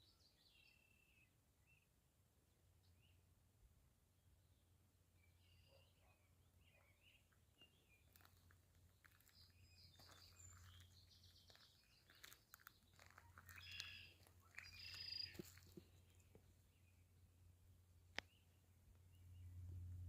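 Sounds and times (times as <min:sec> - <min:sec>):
faint bird chirps: 0:05.2 - 0:08.3, 0:09.0 - 0:16.2
steady low hum: 0:12.8 - 0:20.0.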